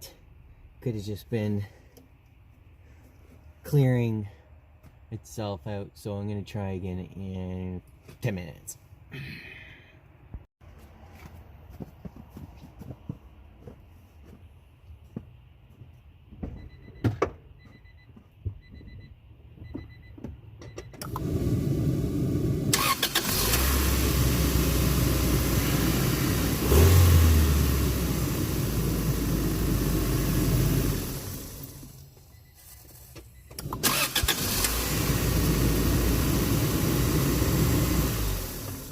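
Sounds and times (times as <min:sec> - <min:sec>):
car engine starting and running: 0:20.8 - 0:32.2, 0:33.4 - 0:38.9.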